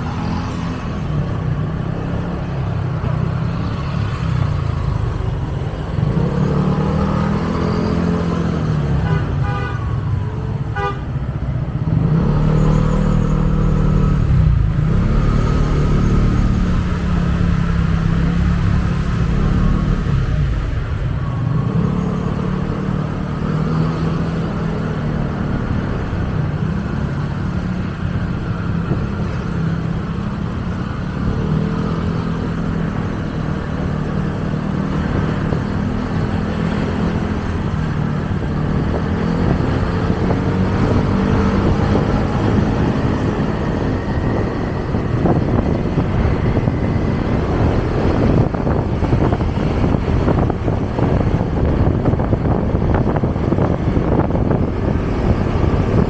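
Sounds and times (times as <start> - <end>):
road and wind noise: 0.0 - 56.0
motorcycle engine running: 11.7 - 21.5.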